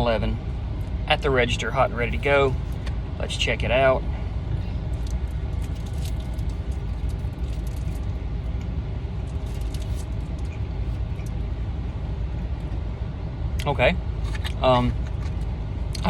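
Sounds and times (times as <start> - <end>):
idling vehicle rumble: 0.0 - 16.0
small clicks and crackles: 5.0 - 8.1.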